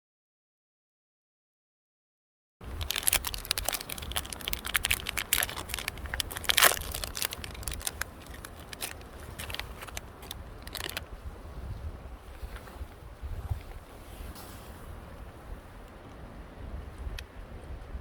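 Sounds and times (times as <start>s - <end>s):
crackling and crunching: 2.6s - 11.1s
low steady rumble: 2.6s - 18.0s.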